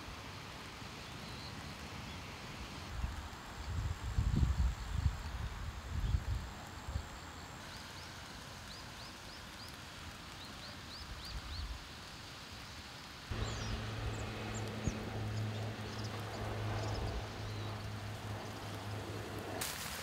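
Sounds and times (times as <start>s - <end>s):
outdoor field ambience: 0.0s - 20.0s
bird chirping: 13.3s - 19.6s
steady low hum: 13.3s - 20.0s.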